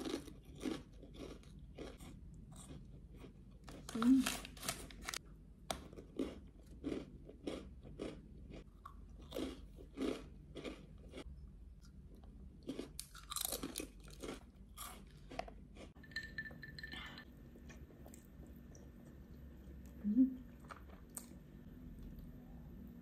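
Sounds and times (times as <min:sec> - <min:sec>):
person chewing crunchy snacks: 0:00.0 - 0:16.0.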